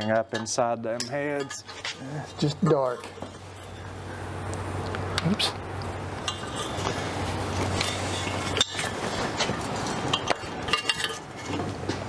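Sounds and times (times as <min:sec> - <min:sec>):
metal engine parts clinking: 0:00.0 - 0:04.0, 0:06.2 - 0:07.0, 0:07.6 - 0:11.8
light metallic rings: 0:00.0 - 0:04.1, 0:07.7 - 0:11.6
steady low hum: 0:00.0 - 0:12.0.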